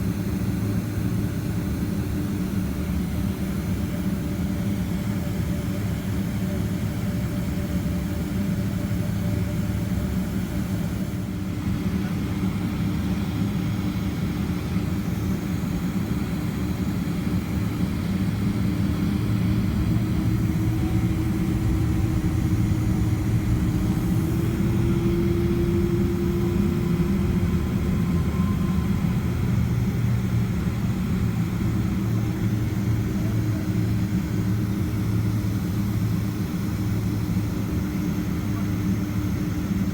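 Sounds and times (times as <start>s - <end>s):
jet engines low rumble: 0.0s - 39.9s
faint engine tone: 16.4s - 39.9s.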